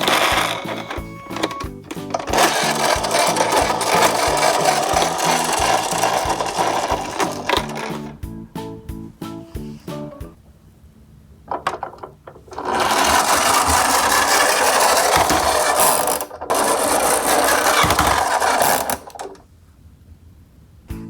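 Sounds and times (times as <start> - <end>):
toy cars rattling down slope: 0.0 - 8.1, 11.5 - 19.4.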